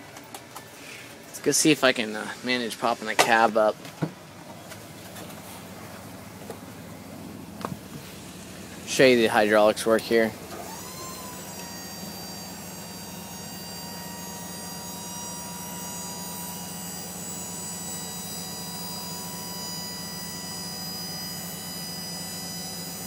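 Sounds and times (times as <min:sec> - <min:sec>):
low hum: 0:00.0 - 0:15.0
hydraulic pump whine: 0:00.0 - 0:23.0.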